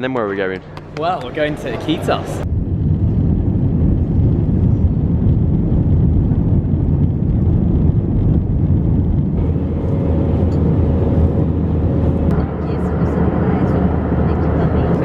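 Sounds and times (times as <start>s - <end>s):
airliner rumbling: 0.6s - 15.0s.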